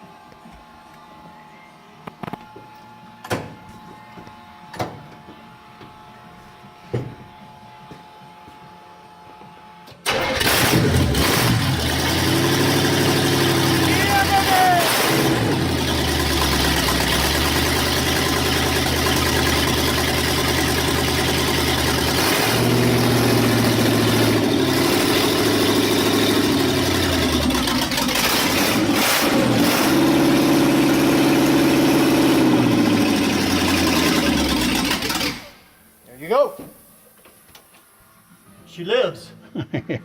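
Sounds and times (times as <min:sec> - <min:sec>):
engine idling and revving: 0:10.1 - 0:35.6.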